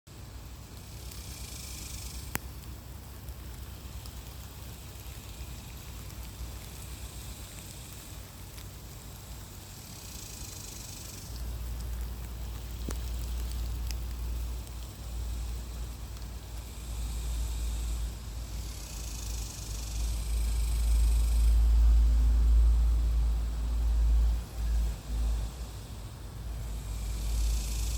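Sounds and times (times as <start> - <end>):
cicadas buzzing: 0.1 - 27.9
low rumble: 20.0 - 27.7.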